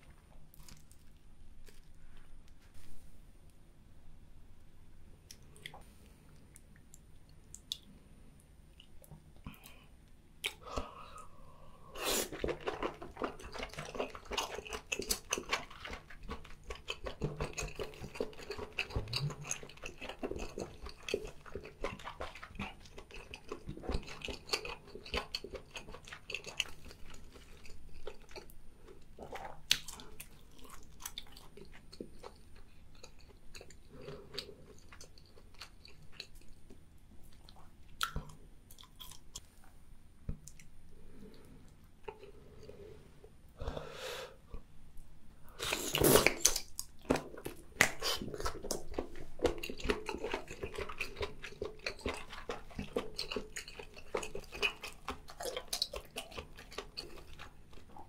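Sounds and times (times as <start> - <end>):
close chewing clicks: 12.4 - 28.6, 46.3 - 58.0.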